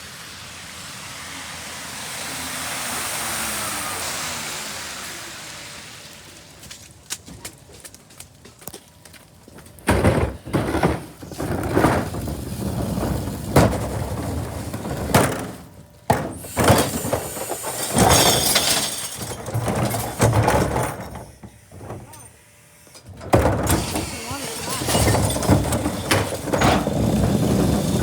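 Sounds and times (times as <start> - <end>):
garbage truck: 0.0 - 28.0
falling trash: 9.7 - 22.3, 23.2 - 28.0
glass bottles crashing and shattering: 16.2 - 21.2, 23.6 - 28.0.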